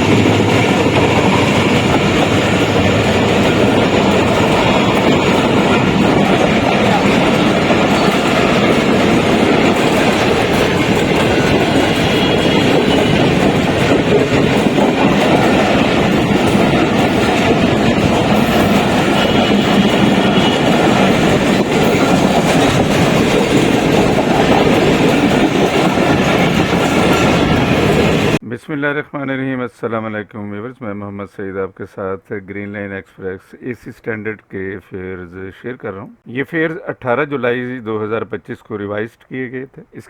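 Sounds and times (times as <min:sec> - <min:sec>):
train rumbling: 0:00.0 - 0:28.4
wheels clattering over rails: 0:00.0 - 0:28.4.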